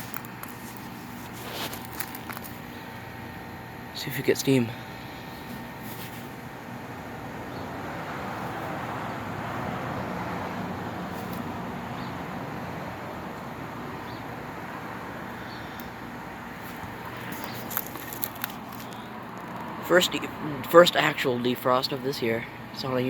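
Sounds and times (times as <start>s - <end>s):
heat pump rushing noise: 0.0s - 23.0s.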